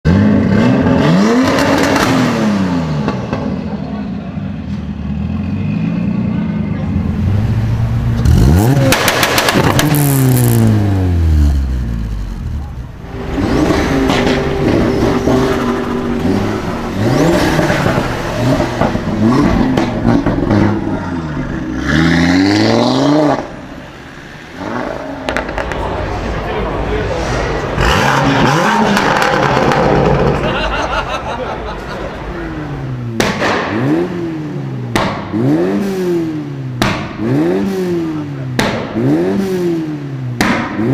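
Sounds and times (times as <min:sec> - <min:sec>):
sports car engine revving: 0:00.1 - 0:03.8, 0:04.9 - 0:26.4, 0:27.2 - 0:30.6, 0:32.2 - 0:40.9
exhaust pops: 0:08.1 - 0:10.7, 0:14.0 - 0:21.0, 0:25.2 - 0:26.1.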